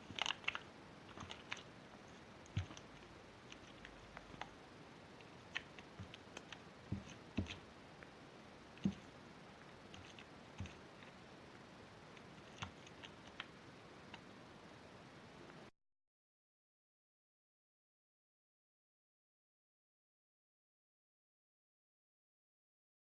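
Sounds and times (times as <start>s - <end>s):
faint steady hiss: 0.0s - 15.7s.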